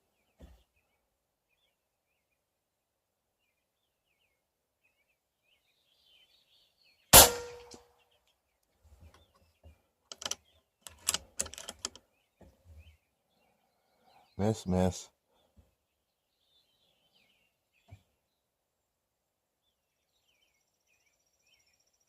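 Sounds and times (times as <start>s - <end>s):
air rifle shot: 7.2s - 7.7s
light clicks and knocks: 9.0s - 12.6s.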